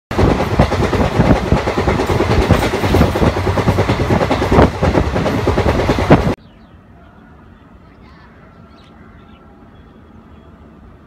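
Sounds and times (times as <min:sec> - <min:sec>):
train wheels rattling over rails: 0:00.1 - 0:06.4.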